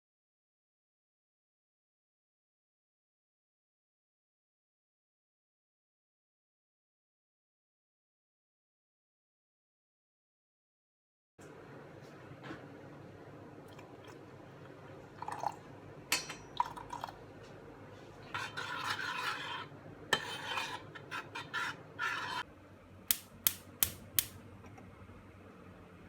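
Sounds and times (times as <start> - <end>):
scraping or stirring in a dish: 18.0 - 22.5
sharp clicks: 23.1 - 24.3.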